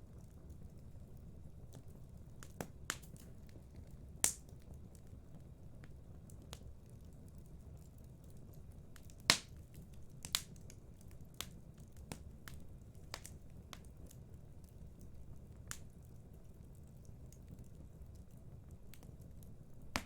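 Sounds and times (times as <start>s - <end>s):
low rumble of burning: 0.0s - 20.0s
wood fire pops and snaps: 1.7s - 16.3s, 18.9s - 20.0s.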